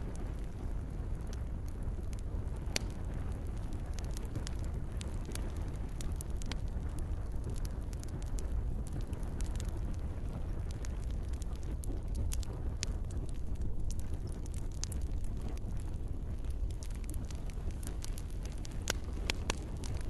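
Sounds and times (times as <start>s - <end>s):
campfire crackling and popping: 0.0s - 20.0s
gentle rain: 0.0s - 20.0s.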